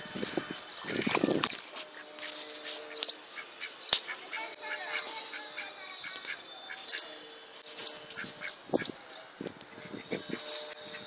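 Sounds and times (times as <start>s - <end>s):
birds chirping: 0.0s - 11.0s
scuffs or crunches: 0.1s - 3.0s.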